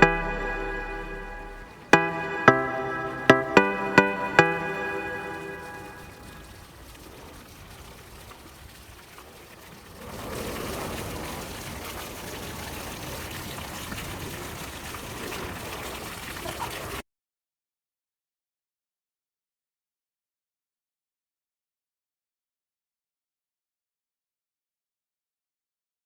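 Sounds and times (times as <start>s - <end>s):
water trickling and splashing: 6.0s - 17.0s.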